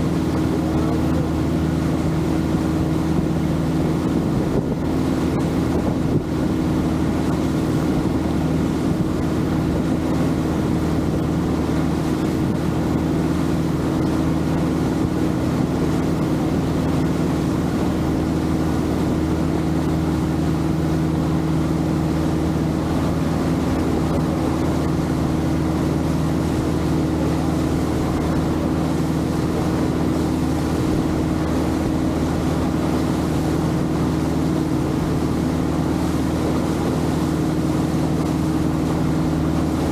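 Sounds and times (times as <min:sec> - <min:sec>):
boat engine droning: 0:00.0 - 0:39.9
water noise: 0:00.0 - 0:39.9
wind noise: 0:03.2 - 0:13.3.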